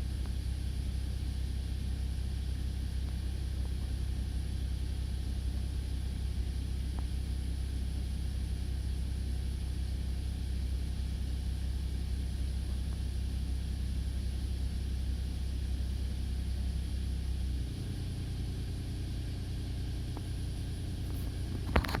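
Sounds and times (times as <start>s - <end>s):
car engine humming: 17.3s - 22.0s.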